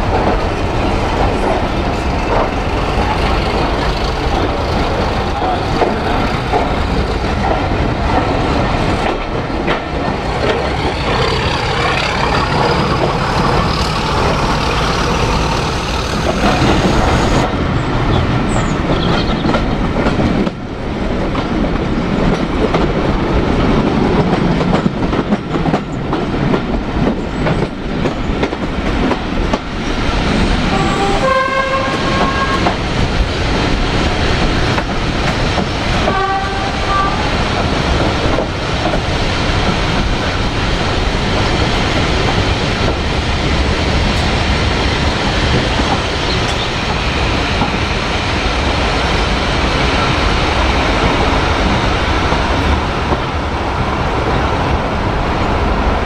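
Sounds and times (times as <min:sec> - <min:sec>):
train rumbling: 0:00.0 - 0:56.0
locomotive horn blast: 0:30.7 - 0:32.8, 0:36.0 - 0:37.3.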